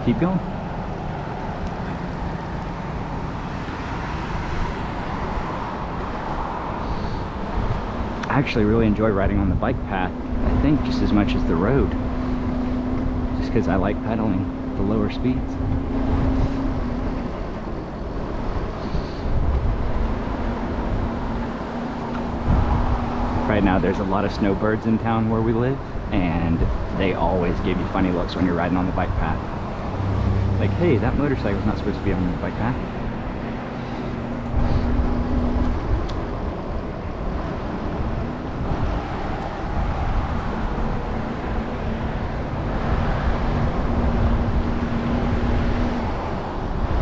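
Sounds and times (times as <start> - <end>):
wind and road rumble: 0.0 - 47.0
wind on microphone: 15.4 - 23.9, 34.0 - 47.0.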